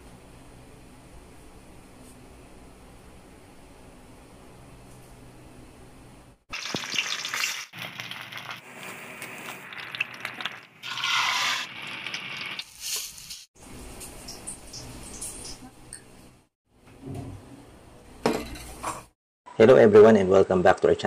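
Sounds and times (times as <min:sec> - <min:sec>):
food sizzling in a pan: 0:06.5 - 0:15.7.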